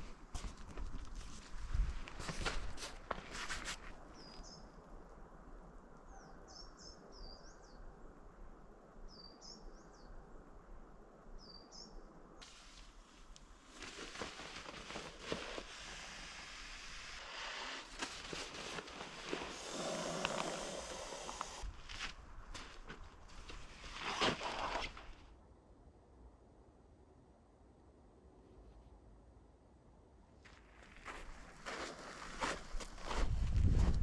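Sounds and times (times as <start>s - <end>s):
rustling: 12.4s - 25.3s.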